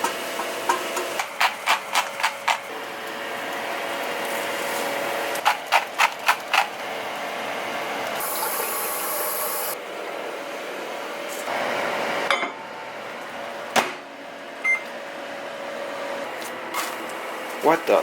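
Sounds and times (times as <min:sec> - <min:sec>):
steady background hum: 0:09.7 - 0:18.0.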